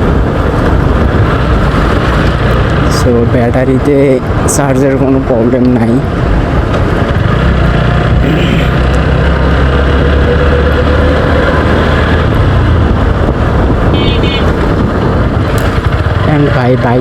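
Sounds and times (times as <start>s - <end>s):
motorcycle engine running: 6.0s - 17.0s.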